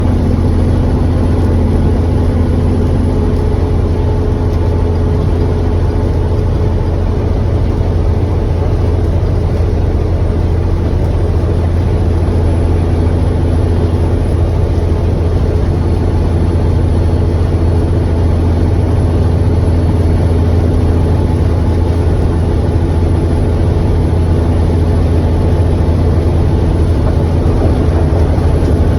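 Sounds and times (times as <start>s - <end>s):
truck diesel engine drone: 0.0s - 28.9s
road noise: 19.5s - 28.9s.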